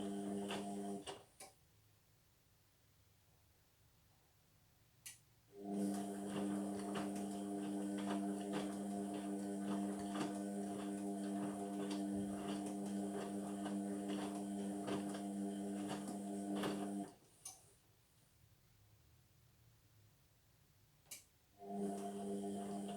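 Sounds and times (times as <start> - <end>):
washing machine motor hum: 0.0 - 1.2, 5.6 - 17.2, 21.6 - 22.9.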